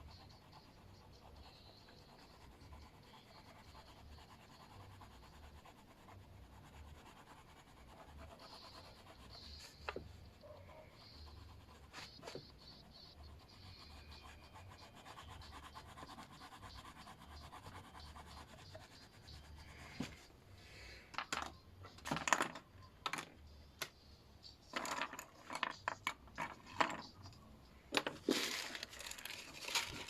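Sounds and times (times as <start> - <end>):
colouring tool scratching on paper: 0.0 - 20.2.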